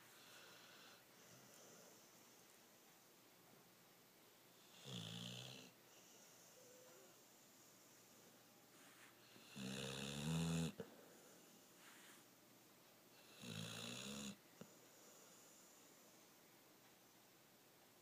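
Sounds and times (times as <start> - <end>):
dog snoring: 0.1 - 2.1, 4.6 - 7.2, 9.2 - 10.8, 13.2 - 15.8.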